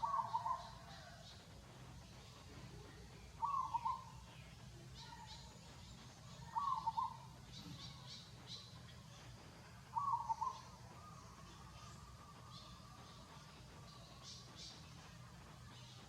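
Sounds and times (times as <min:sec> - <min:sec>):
bird calling: 0:00.0 - 0:01.2, 0:03.4 - 0:04.3, 0:06.3 - 0:08.3, 0:09.9 - 0:13.4.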